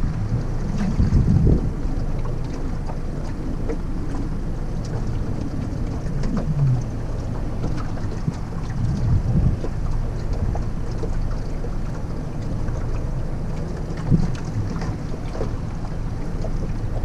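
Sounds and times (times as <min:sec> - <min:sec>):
wind rumble on microphone: 0:00.0 - 0:17.0
brief low falling sound: 0:06.3 - 0:06.9.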